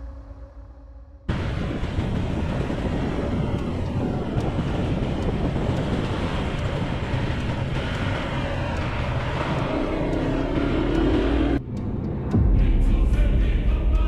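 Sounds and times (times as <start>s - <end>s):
motorbike engine running: 1.3s - 11.6s
wind rushing over microphone: 1.3s - 14.0s.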